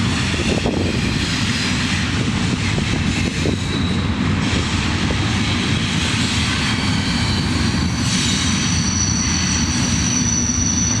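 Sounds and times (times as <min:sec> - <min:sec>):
diesel locomotive rumbling past: 0:00.0 - 0:11.0
high squealing tones: 0:08.2 - 0:11.0.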